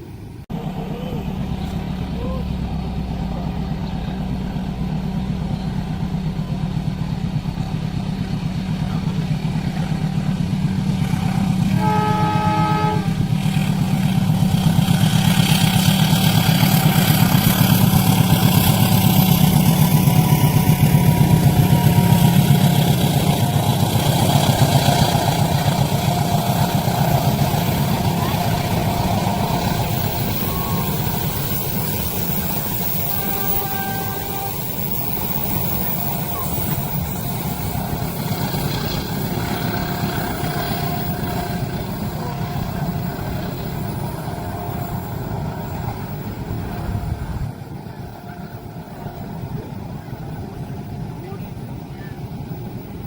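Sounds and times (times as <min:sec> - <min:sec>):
train rumbling past: 0:00.0 - 0:53.0
train horn blast: 0:11.0 - 0:15.9, 0:18.1 - 0:50.1.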